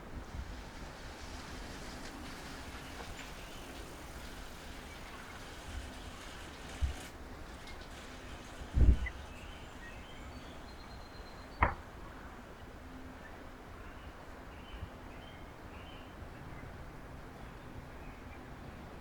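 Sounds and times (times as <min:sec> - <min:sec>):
outdoor background noise: 0:00.0 - 0:19.0
heavy low thump: 0:11.6 - 0:11.9
sharp knock: 0:11.6 - 0:11.9.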